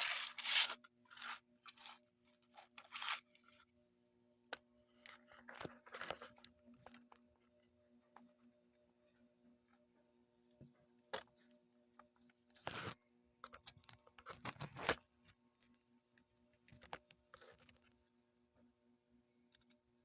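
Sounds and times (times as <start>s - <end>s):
metal scraping and crunching: 0.0s - 2.0s, 2.6s - 3.2s.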